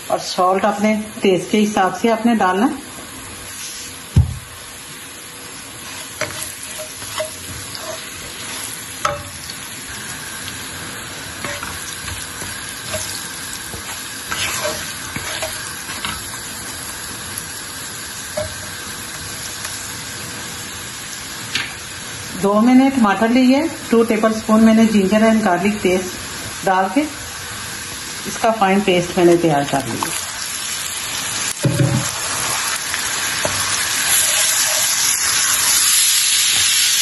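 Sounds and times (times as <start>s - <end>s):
onions sizzling in oil: 0.0s - 37.0s
heavy thump: 4.2s - 4.5s
wooden spoon scraping a pan: 5.8s - 9.2s, 11.4s - 16.3s, 33.4s - 35.1s
spoon knocking against pan: 18.4s - 18.7s.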